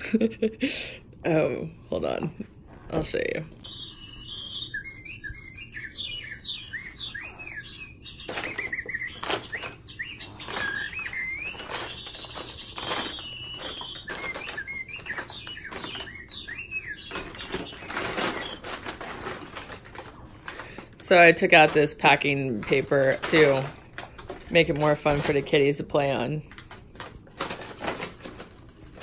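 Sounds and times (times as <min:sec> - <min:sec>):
bird chirps from small speaker: 0:03.6 - 0:19.9
paper crinkling: 0:06.7 - 0:29.0.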